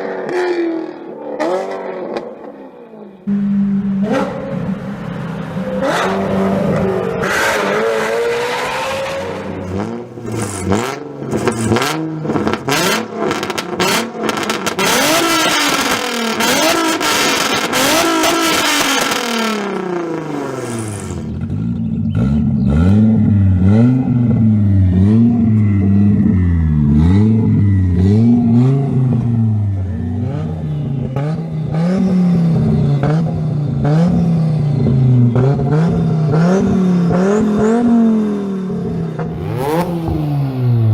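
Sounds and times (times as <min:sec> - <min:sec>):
car engine revving: 0:00.0 - 0:40.9
exhaust crackles and pops: 0:10.2 - 0:19.7.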